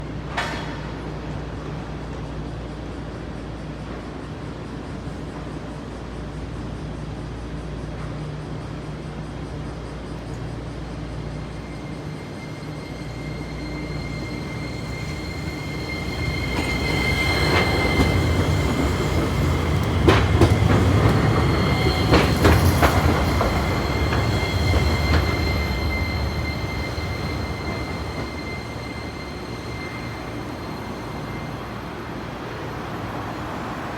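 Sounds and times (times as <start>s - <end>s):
tram passing: 0.0s - 33.9s
steady high whine: 5.9s - 33.2s
wheels clacking over rail joints: 14.9s - 29.1s.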